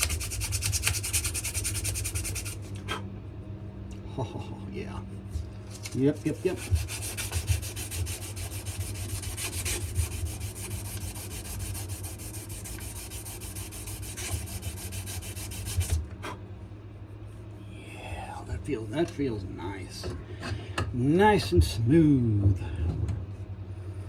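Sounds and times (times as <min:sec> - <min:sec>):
sandpaper rubbing on wood: 0:00.0 - 0:02.7, 0:05.7 - 0:16.0.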